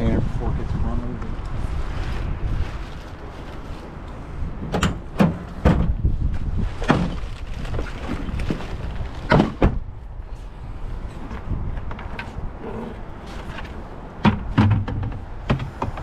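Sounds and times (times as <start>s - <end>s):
wind rumble on microphone: 0.0s - 16.0s
truck doors shutting: 4.6s - 6.0s
thumps and bangs: 14.2s - 16.0s.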